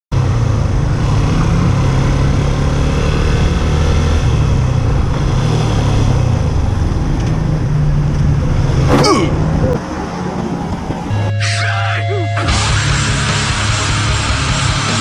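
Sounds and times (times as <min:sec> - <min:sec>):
wind and road noise: 0:00.1 - 0:11.3.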